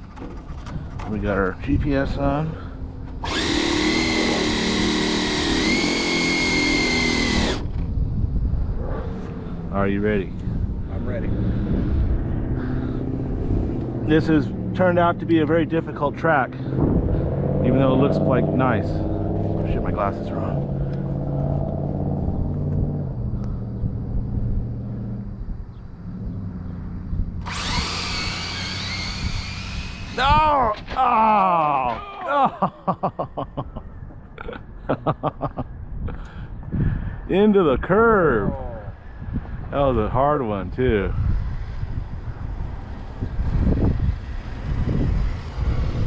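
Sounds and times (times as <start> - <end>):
electric motor whine: 3.2 - 7.9, 27.4 - 30.6
low steady rumble: 16.7 - 30.3.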